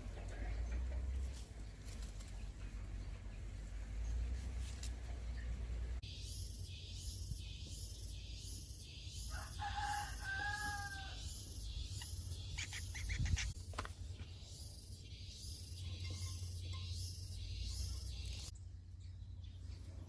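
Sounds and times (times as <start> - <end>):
rooster crowing: 9.3 - 11.2.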